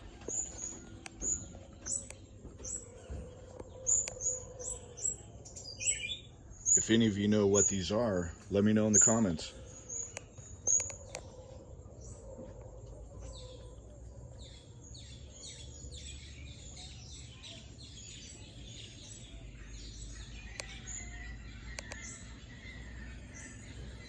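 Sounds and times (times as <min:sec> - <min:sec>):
tropical birds chirping: 0:00.0 - 0:24.0
sharp clicks: 0:21.7 - 0:22.1.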